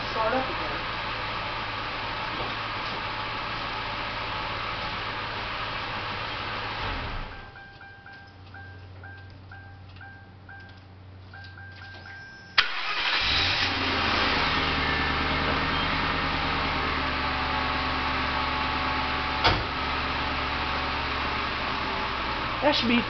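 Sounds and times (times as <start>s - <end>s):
car engine starting and idling: 0.0s - 7.8s, 12.5s - 23.0s
electronic warning chime: 7.3s - 12.6s.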